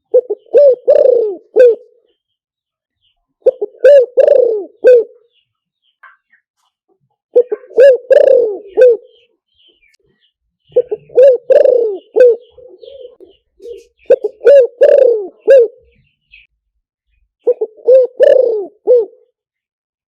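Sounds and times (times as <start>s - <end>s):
dove cooing: 0.0s - 2.1s, 3.4s - 5.4s, 7.3s - 9.3s, 10.7s - 16.5s, 17.4s - 19.3s.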